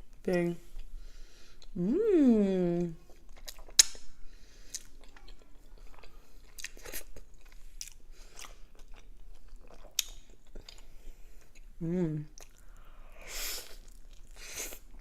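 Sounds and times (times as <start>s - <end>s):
chewing food: 3.0s - 12.9s, 13.6s - 15.0s
wet mouth clicks and crunches: 3.3s - 4.0s.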